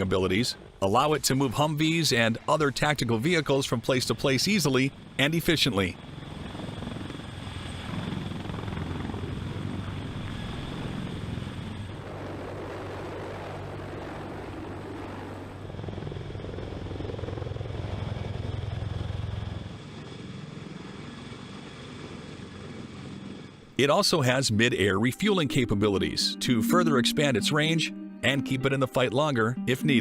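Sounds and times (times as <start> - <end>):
helicopter rotor and engine: 0.0 - 23.8.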